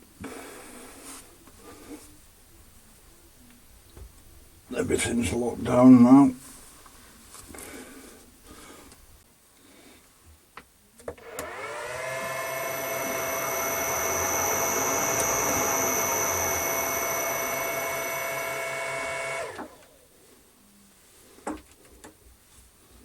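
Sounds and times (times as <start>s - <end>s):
metal lathe motor running: 11.3s - 19.6s.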